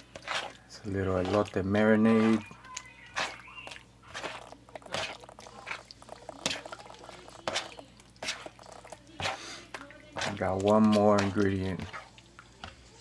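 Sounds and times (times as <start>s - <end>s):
soft wet squishing: 0.0s - 13.0s.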